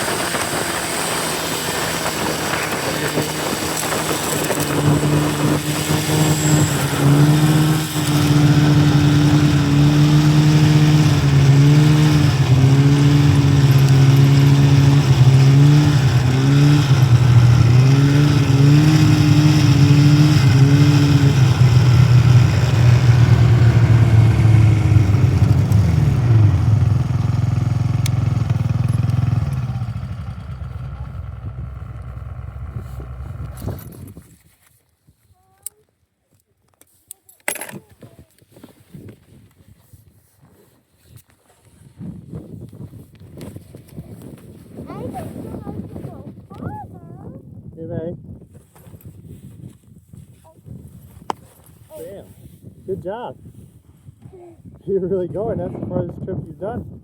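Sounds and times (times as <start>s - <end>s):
snowmobile engine revving: 0.0s - 33.9s.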